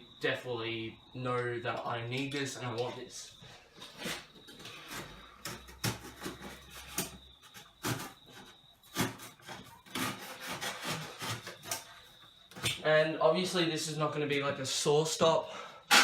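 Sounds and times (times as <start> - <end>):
blade scraping through cardboard: 3.8 - 11.9.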